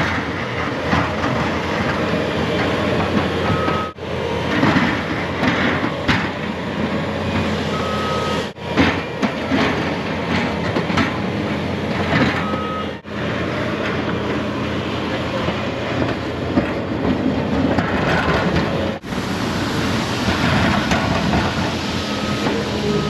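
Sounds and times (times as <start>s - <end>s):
snowplow truck rumbling: 0.0s - 23.0s
high beep: 7.7s - 8.4s.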